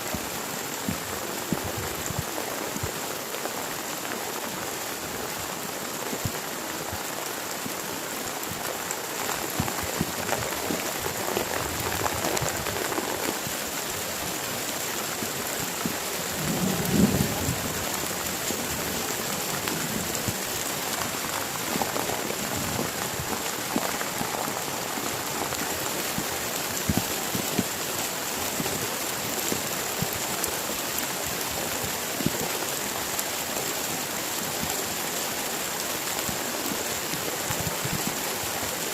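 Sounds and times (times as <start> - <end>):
heavy rain falling: 0.0 - 38.9
raindrops ticking on surfaces: 0.0 - 38.9.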